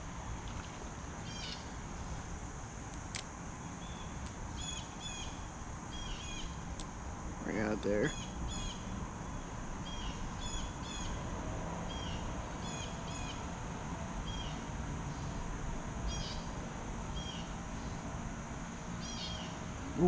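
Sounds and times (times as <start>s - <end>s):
outdoor background hiss: 0.0s - 20.0s
bird chirping: 3.6s - 6.6s, 19.0s - 19.6s.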